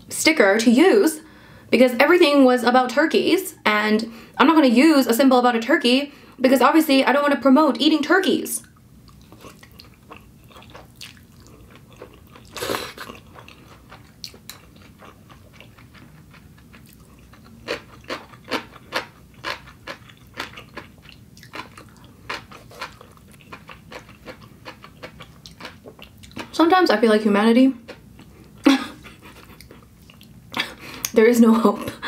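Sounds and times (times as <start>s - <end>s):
person chewing noodles: 8.7s - 26.5s, 27.9s - 31.2s.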